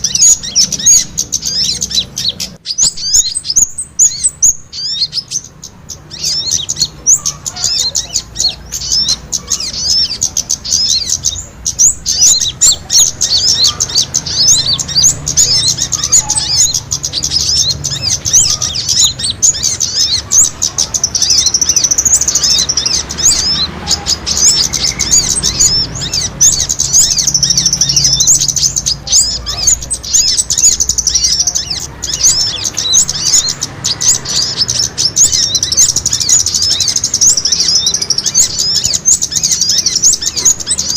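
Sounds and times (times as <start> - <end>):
small birds chirping and twittering: 0.0 - 40.9.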